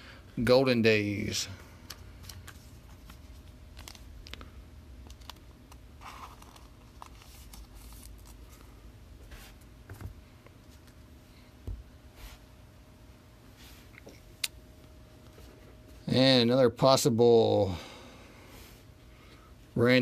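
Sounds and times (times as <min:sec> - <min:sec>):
trading cards rustling and clicking: 0:01.8 - 0:08.7.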